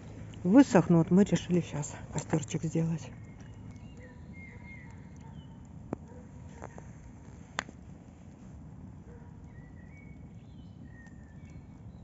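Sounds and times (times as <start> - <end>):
nightingales singing: 1.7 - 5.6
campfire crackling: 3.1 - 12.0
fire popping: 3.1 - 12.0.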